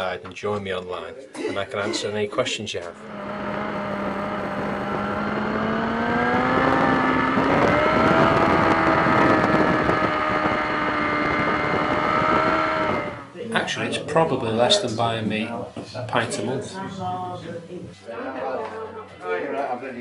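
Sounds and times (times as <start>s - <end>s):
broad rushing noise: 2.9s - 13.4s
motorcycle engine pulling: 2.9s - 13.4s.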